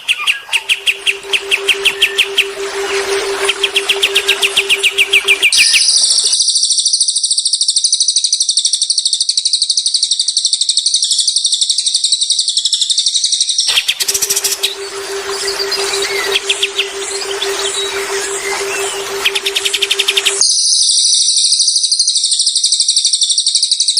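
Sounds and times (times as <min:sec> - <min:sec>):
songbird chirping and trilling: 0:00.1 - 0:06.4, 0:13.8 - 0:20.4
low pulsing tone: 0:00.6 - 0:06.3, 0:14.0 - 0:20.4.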